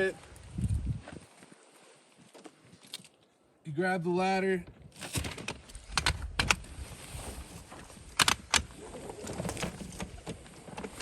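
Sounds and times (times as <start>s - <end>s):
rustling: 5.0s - 11.0s.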